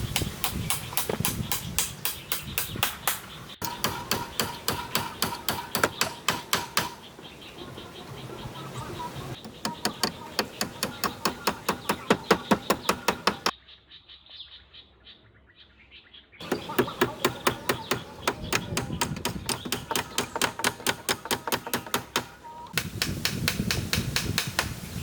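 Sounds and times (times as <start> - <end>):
hand tool striking wood: 0.1 - 7.1, 9.4 - 13.5, 16.4 - 24.8.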